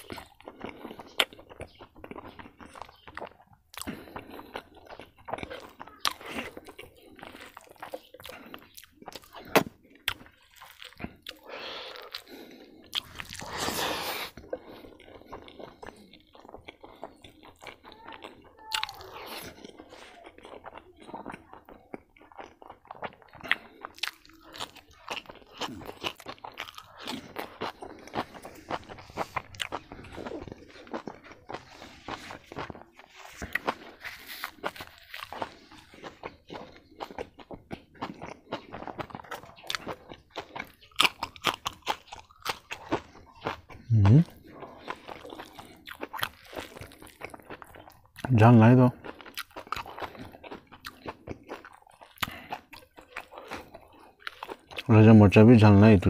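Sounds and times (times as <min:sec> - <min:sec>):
person chewing and crunching food: 0:00.0 - 0:56.0
breathy noise: 0:11.1 - 0:16.2.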